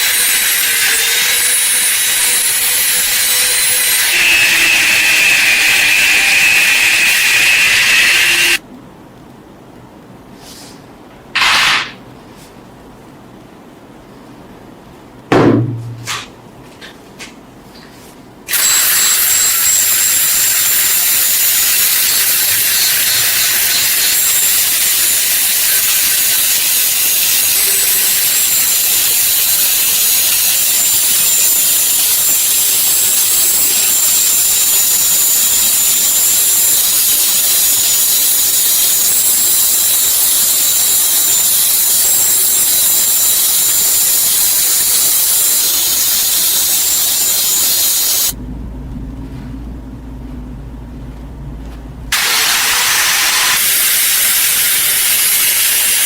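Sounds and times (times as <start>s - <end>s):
power tool hissing and whining: 0.0s - 8.6s, 18.5s - 48.4s, 52.2s - 56.0s
thump: 15.3s - 16.3s.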